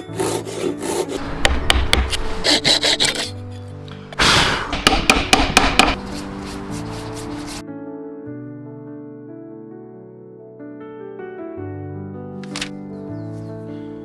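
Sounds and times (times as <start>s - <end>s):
tool scraping and rasping on wood: 0.0s - 7.6s
soft background music: 0.0s - 14.0s
sharp knocks: 1.2s - 3.2s, 4.2s - 6.0s.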